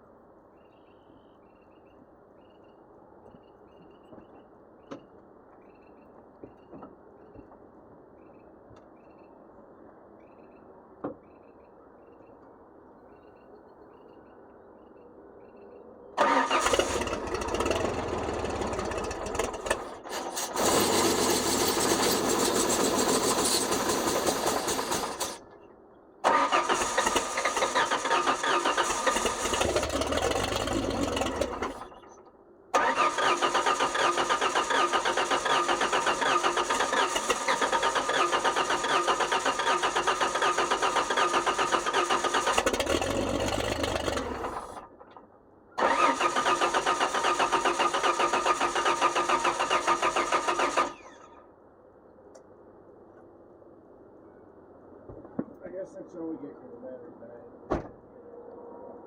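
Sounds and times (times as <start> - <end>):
engine starter cranking: 16.2 - 25.4, 26.2 - 32.1, 32.8 - 44.8, 45.8 - 51.2.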